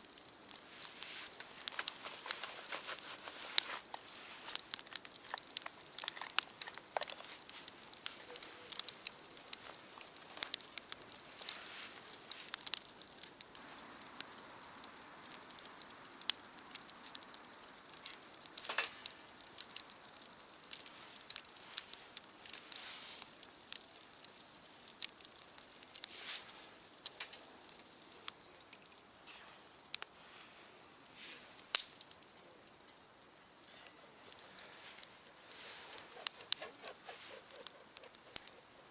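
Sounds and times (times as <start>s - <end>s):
faint steady hiss: 0.0s - 38.9s
wood fire crackling and popping: 0.0s - 38.9s.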